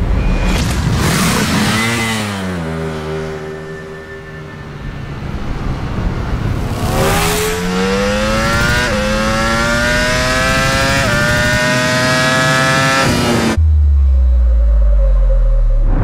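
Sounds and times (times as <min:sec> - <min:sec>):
motorcycle engine at full throttle: 0:06.2 - 0:13.6.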